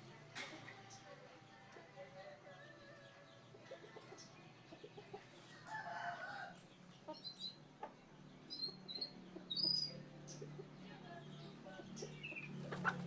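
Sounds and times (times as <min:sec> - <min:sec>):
chicken clucking: 0:12.0 - 0:13.0.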